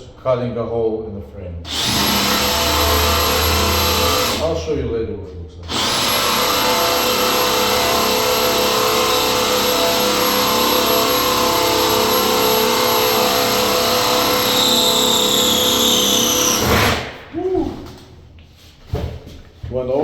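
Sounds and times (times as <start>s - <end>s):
cordless drill cutting wood: 1.7s - 4.5s, 5.7s - 17.2s.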